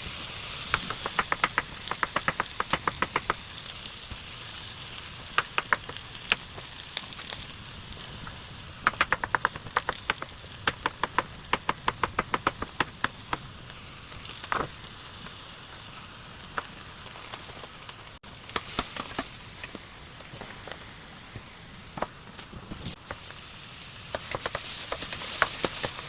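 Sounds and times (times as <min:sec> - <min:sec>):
food sizzling in a pan: 0:00.0 - 0:09.0, 0:22.9 - 0:26.0.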